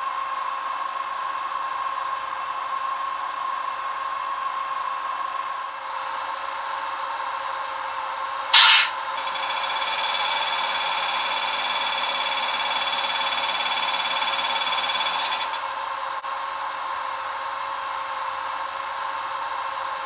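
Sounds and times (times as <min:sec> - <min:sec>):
model locomotive whirring hum: 0:00.0 - 0:20.0
short loud hiss: 0:08.5 - 0:09.0.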